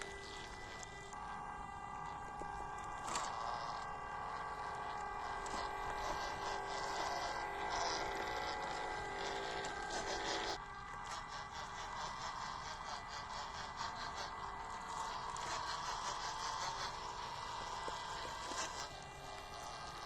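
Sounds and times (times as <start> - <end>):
electric motor whine: 0.0 - 20.0
scratchy noise: 3.0 - 18.9.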